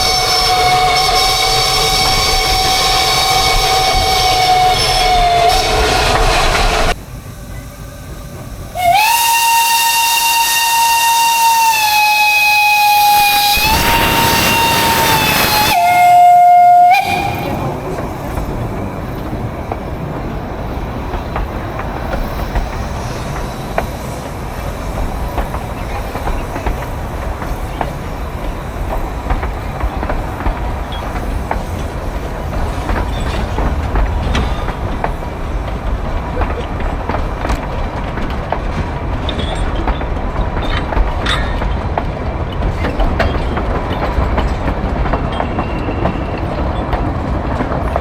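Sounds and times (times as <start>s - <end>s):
steam locomotive whistle: 0.0s - 7.0s, 8.7s - 17.8s
steam hissing: 0.0s - 38.0s
train rumbling: 0.0s - 48.0s
wheels clacking: 11.9s - 48.0s.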